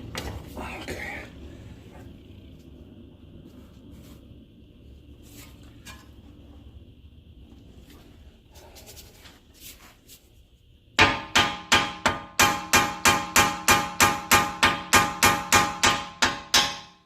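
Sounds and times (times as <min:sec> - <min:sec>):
faint low hum: 0:00.0 - 0:11.3.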